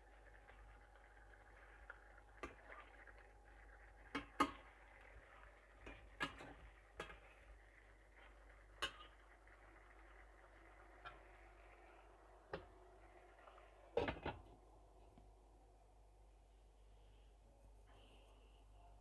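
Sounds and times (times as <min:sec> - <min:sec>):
faint background hum: 0:00.0 - 0:19.0.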